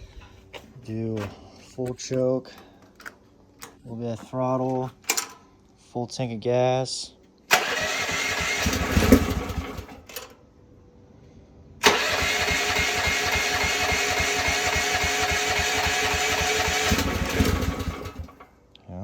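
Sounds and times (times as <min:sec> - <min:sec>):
small gasoline engine running: 0:07.5 - 0:10.1, 0:11.8 - 0:18.5.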